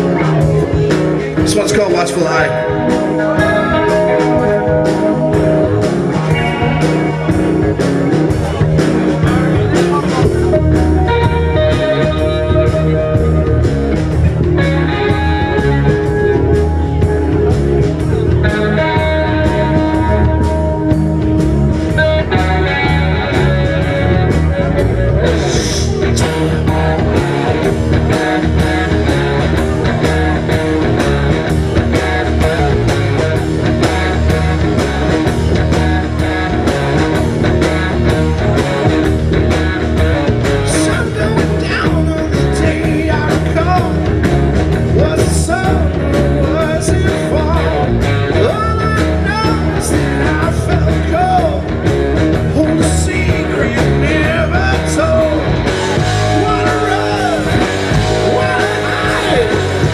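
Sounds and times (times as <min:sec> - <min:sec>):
electric guitar: 0:00.0 - 0:59.9
steady drum beat: 0:00.0 - 0:59.9
person singing: 0:52.5 - 0:55.6, 0:56.2 - 0:59.9.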